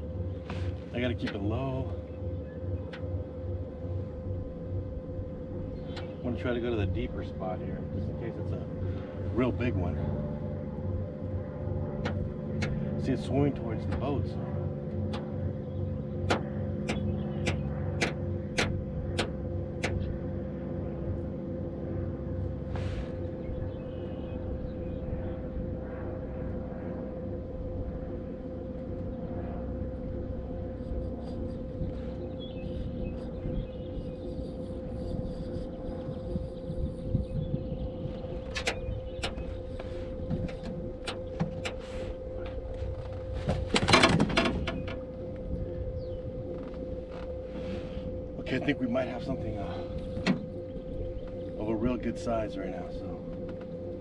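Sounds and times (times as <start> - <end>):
boat motor humming: 0.0 - 54.0
sharp clicks: 16.2 - 20.1.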